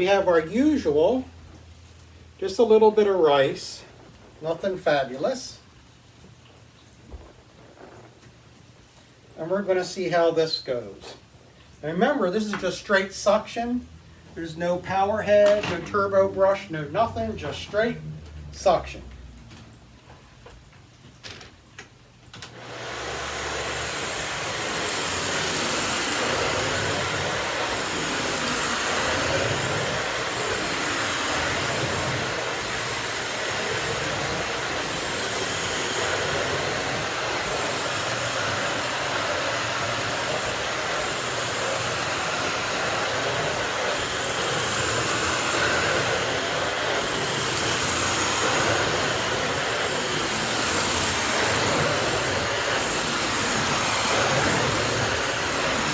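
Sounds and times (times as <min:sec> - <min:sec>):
stick vacuum running: 0:22.3 - 0:55.9.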